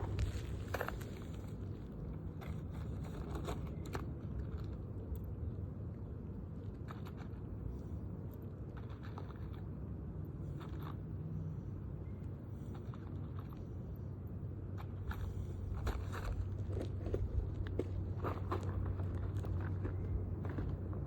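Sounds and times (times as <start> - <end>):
crunching and scraping shingles: 0.0 - 4.8, 14.8 - 21.0
low steady rumble: 0.0 - 21.0.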